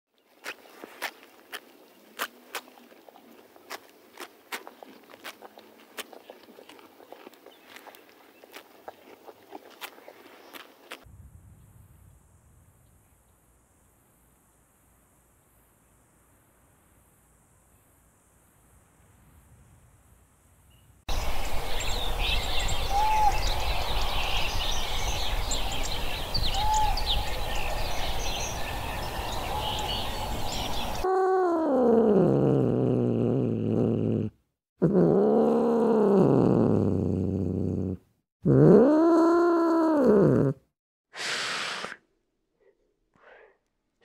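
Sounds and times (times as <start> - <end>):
wild cat long calls: 31.1 - 40.6.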